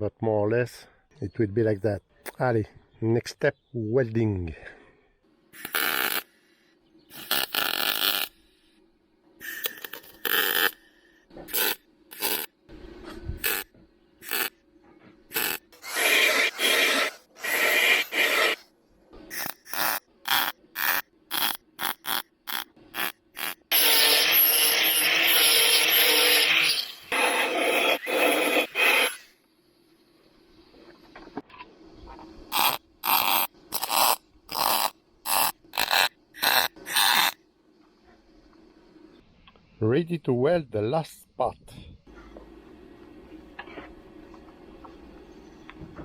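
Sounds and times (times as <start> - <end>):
crackling welding: 5.6 - 6.3, 7.1 - 8.4, 9.4 - 10.8, 11.5 - 12.5, 13.4 - 14.6, 15.3 - 18.6, 19.3 - 29.1, 32.5 - 37.4.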